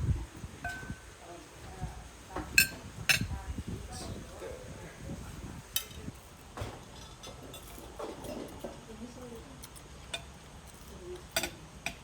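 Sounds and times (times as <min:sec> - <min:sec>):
faint voices murmuring: 0:00.0 - 0:06.2
plates and cutlery clinking: 0:05.8 - 0:08.8.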